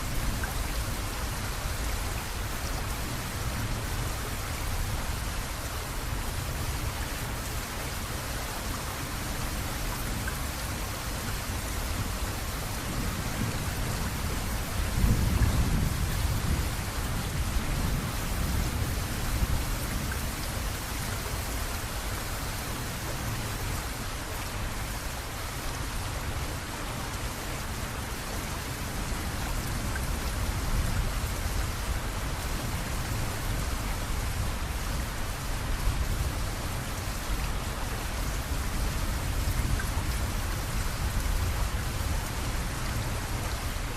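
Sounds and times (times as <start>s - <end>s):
heavy rain: 0.0s - 43.9s
low rumble of thunder: 12.0s - 20.8s.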